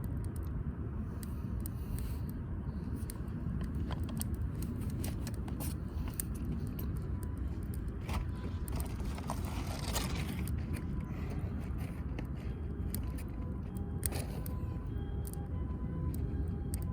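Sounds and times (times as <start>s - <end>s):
wood fire crackling: 3.0s - 16.9s.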